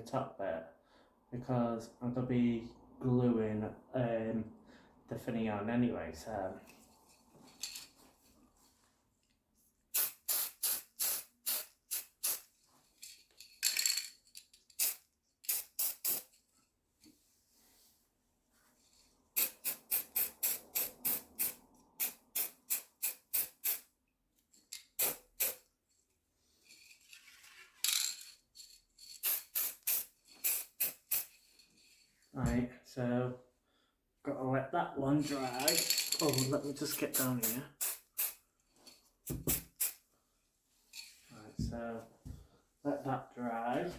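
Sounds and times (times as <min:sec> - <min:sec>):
spray can ball rattling: 0:09.9 - 0:16.4, 0:19.4 - 0:23.9, 0:24.7 - 0:25.6, 0:27.8 - 0:31.6, 0:35.2 - 0:38.4, 0:39.2 - 0:40.0
spray paint hissing: 0:10.0 - 0:12.4, 0:14.8 - 0:16.3, 0:19.4 - 0:23.9, 0:25.0 - 0:25.6, 0:29.2 - 0:31.4, 0:36.9 - 0:38.4, 0:39.3 - 0:40.0.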